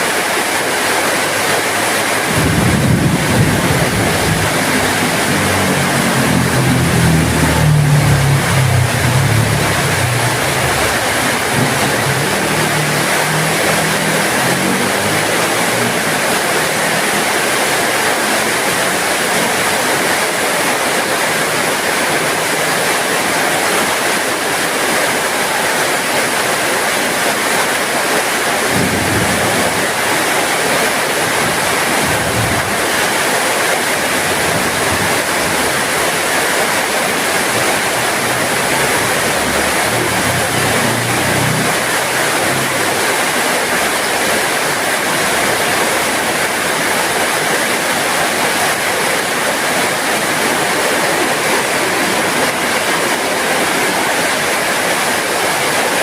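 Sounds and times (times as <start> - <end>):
heavy rain hissing: 0.0 - 56.0
low rumbles: 2.0 - 16.8.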